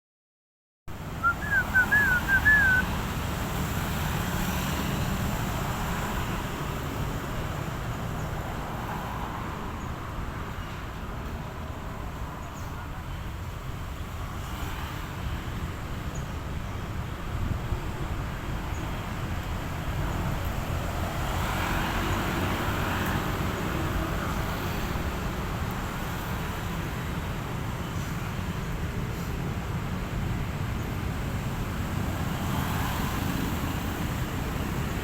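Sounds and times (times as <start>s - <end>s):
outdoor background rumble and hiss: 0.9s - 35.0s.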